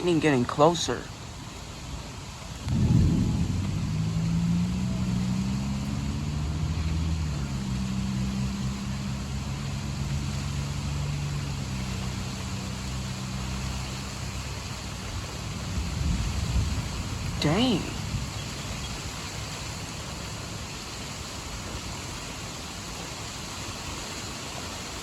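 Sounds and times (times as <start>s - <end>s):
rain hiss: 0.0s - 25.0s
low engine hum: 2.5s - 24.6s.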